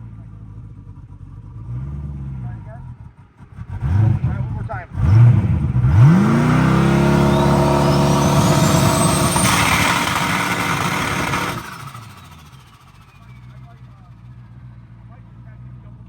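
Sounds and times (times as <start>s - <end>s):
car engine revving: 1.5s - 14.2s
faint high whistle: 7.1s - 10.5s.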